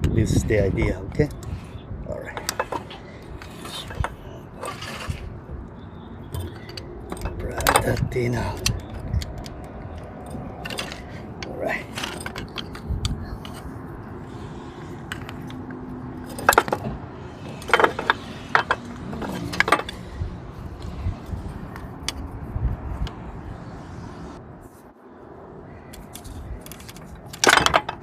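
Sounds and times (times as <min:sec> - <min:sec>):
tools clinking against metal: 0:06.3 - 0:13.7, 0:16.2 - 0:16.9, 0:17.5 - 0:20.0.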